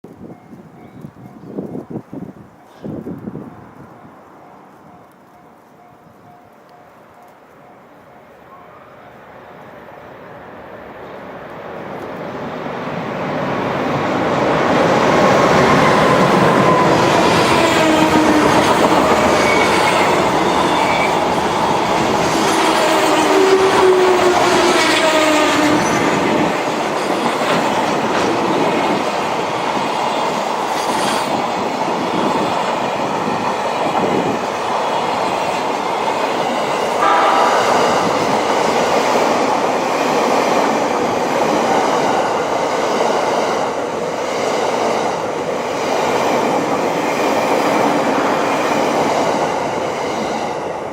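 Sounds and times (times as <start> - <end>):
train wheels on rails clacking: 13.7 - 50.9
train horn: 15.1 - 26.6, 37.0 - 39.8
whining tones falling in pitch: 37.0 - 39.5.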